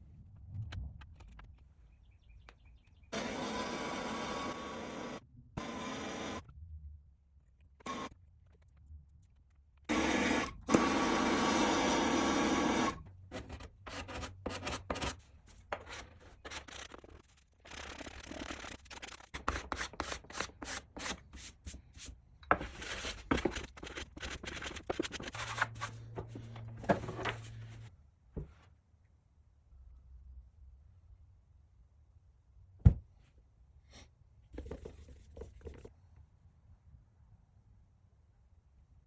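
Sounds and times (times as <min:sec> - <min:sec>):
rubbing and scraping on wood: 0:13.3 - 0:27.9.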